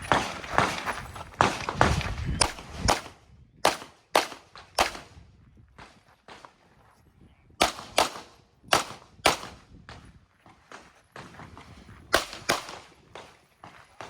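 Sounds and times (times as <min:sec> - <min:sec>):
pistol shots: 0:01.4 - 0:05.1, 0:07.6 - 0:09.6, 0:12.1 - 0:13.4.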